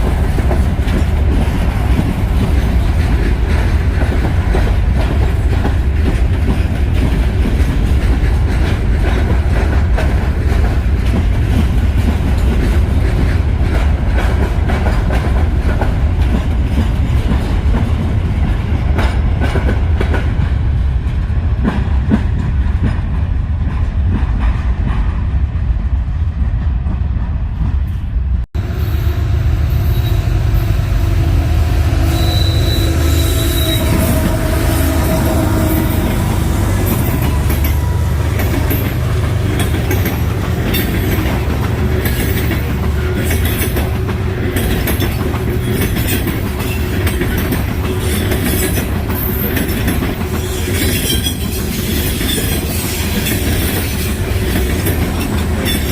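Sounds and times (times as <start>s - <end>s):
wheels clacking over rail joints: 0.0s - 25.2s, 31.9s - 55.9s
freight train rumbling past: 0.0s - 55.9s
wheels squealing on rail: 28.6s - 55.9s.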